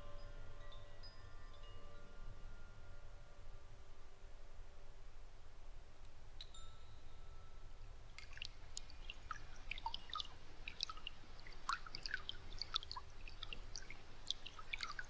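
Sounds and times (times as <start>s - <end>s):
faint low hum: 0.0s - 15.0s
water dripping: 7.8s - 15.0s.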